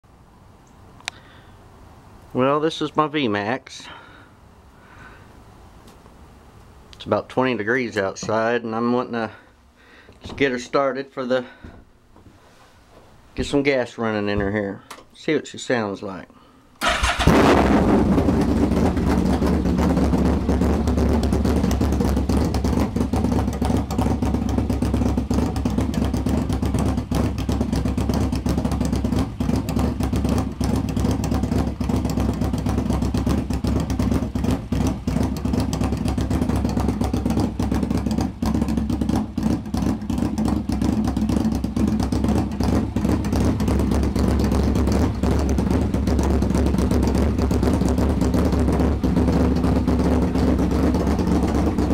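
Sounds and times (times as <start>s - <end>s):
motorcycle engine idling: 16.8s - 51.9s.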